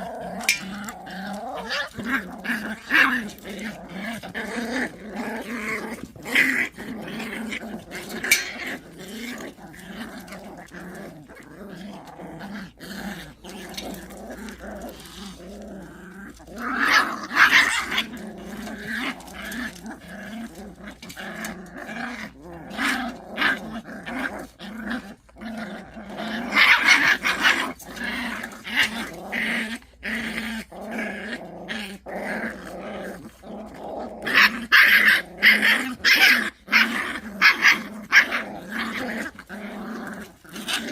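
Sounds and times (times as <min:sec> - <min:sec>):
dogs growling: 0:00.0 - 0:40.9.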